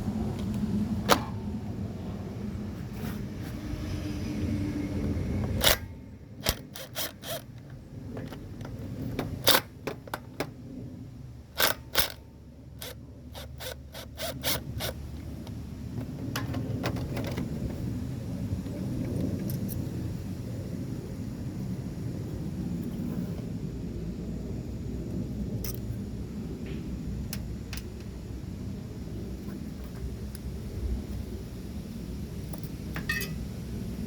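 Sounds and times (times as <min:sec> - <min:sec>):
low rumble: 0:00.0 - 0:06.6
metal tools clinking: 0:33.0 - 0:33.4.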